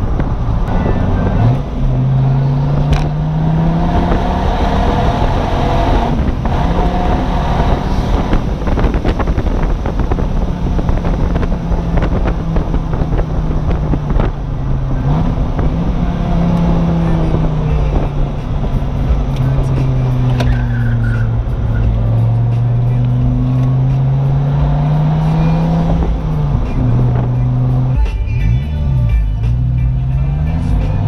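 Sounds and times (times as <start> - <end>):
wind rushing over microphone: 0.0 - 28.0
sports car engine revving: 0.0 - 31.0.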